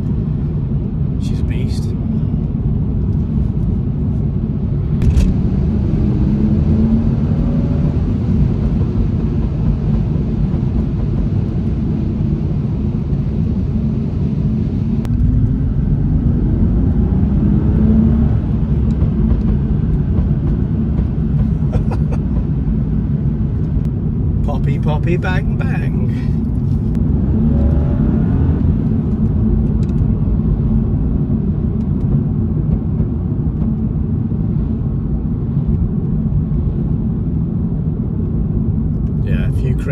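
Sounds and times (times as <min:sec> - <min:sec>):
car engine accelerating: 0:04.8 - 0:35.2.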